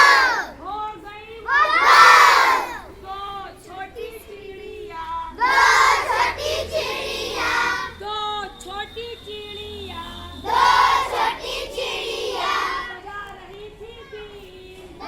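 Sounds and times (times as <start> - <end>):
children singing: 0.0 - 0.5, 1.5 - 2.9, 5.4 - 8.0, 10.4 - 13.0.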